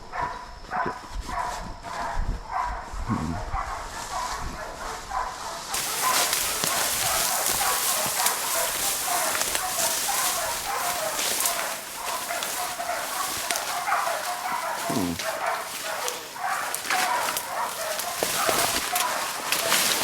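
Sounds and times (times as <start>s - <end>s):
dogs barking: 0.0s - 20.0s
crackles: 5.7s - 20.0s.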